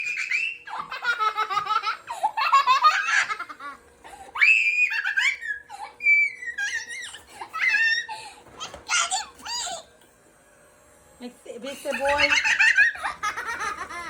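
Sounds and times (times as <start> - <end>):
young child laughing: 0.0 - 3.8, 4.8 - 9.8, 11.9 - 14.0
child squealing: 4.4 - 9.9.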